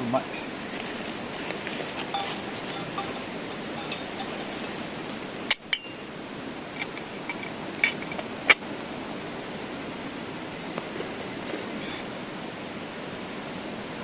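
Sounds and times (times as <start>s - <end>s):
mountain stream rushing: 0.0s - 14.0s
camp cookware clinking: 0.8s - 8.7s.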